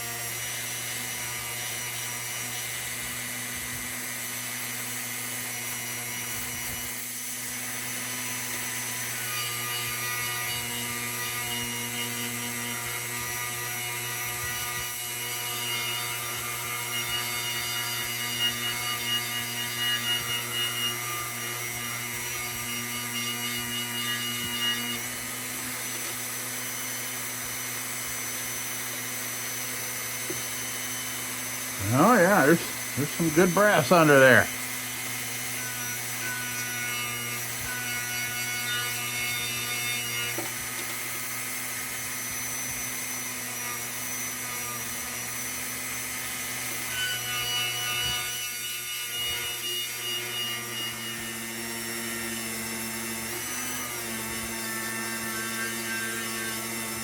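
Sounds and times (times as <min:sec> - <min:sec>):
small power tool motor hum: 0:00.0 - 0:57.0.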